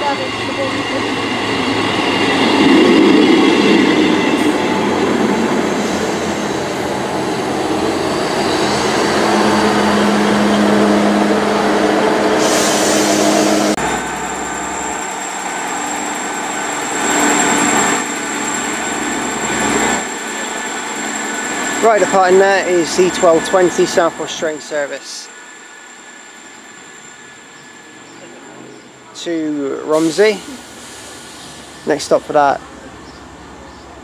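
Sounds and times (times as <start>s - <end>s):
diesel train arriving: 0.0s - 34.0s
thin high whine: 12.4s - 30.5s.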